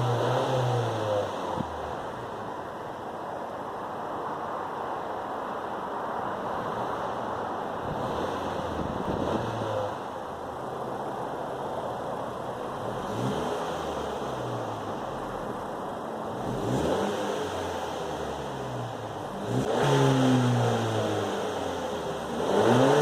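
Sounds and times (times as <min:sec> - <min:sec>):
engine revving: 0:00.0 - 0:02.3, 0:07.8 - 0:10.2, 0:12.8 - 0:15.5, 0:16.3 - 0:23.0
car exhaust idling: 0:06.6 - 0:23.0.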